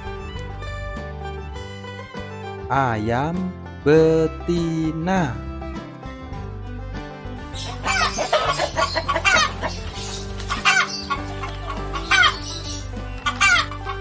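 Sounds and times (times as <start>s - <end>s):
background music with held notes: 0.0s - 14.0s
hens clucking: 7.5s - 14.0s.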